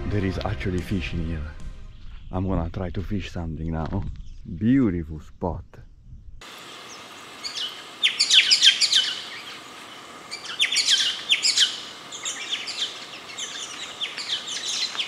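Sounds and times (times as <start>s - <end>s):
small birds chirping: 4.0s - 15.0s
background hiss: 6.4s - 15.0s.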